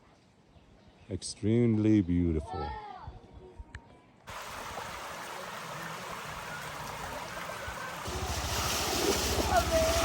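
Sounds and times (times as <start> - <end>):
mountain stream rushing: 4.3 - 10.0.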